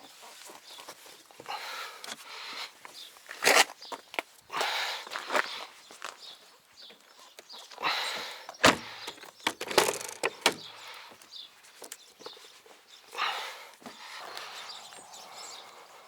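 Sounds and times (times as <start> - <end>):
sharp clicks and knocks: 8.6 - 10.7.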